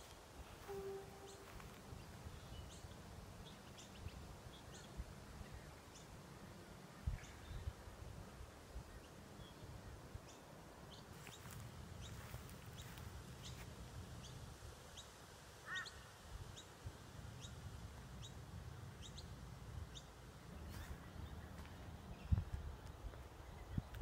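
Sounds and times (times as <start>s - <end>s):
lower bird call: 0.5s - 2.9s
high bird chirps: 0.6s - 2.8s
wind noise on microphone: 20.6s - 24.0s.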